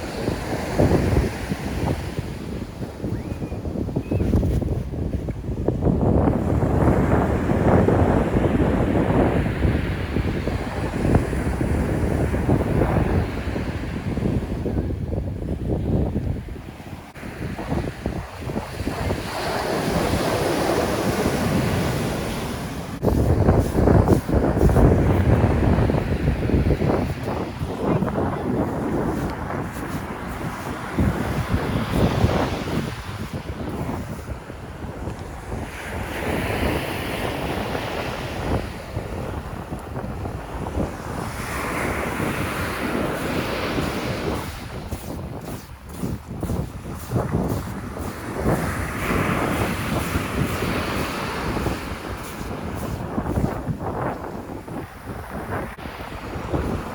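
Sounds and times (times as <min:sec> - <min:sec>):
wind buffeting microphone: 0:00.0 - 0:56.9
heavy surf breaking: 0:17.1 - 0:56.9.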